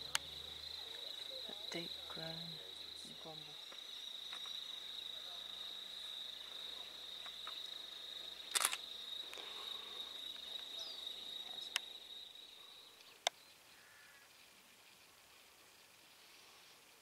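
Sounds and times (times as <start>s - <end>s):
insect high-pitched trill: 0.0s - 17.0s
sharp clicks: 8.5s - 9.4s.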